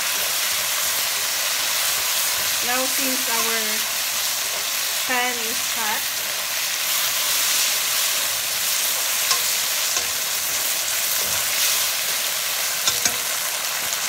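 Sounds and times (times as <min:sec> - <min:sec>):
food sizzling in a wok: 0:00.0 - 0:14.0
chopsticks clicking against pan: 0:09.2 - 0:10.5, 0:12.8 - 0:13.5.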